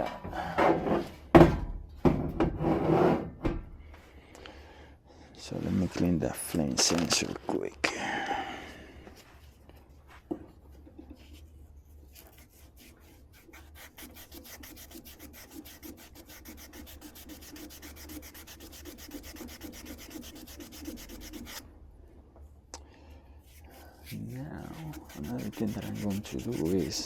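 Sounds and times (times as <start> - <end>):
abrasive scrubbing metal rod: 13.4 - 21.6, 23.5 - 27.0.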